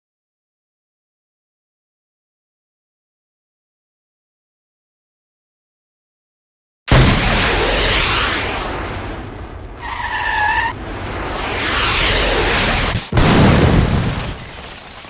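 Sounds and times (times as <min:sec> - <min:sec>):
car rushing and skidding: 0:09.8 - 0:12.9.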